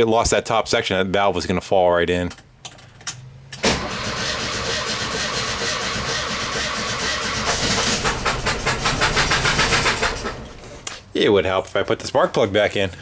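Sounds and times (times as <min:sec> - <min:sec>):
engine cranking on starter: 0:03.5 - 0:11.0.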